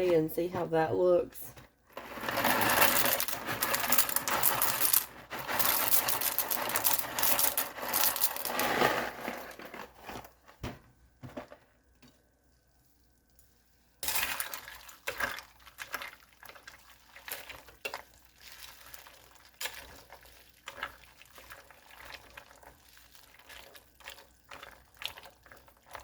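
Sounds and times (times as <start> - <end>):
liquid stirring: 1.9 - 9.8, 14.0 - 26.0
dry pasta rattling into pot: 1.9 - 10.3.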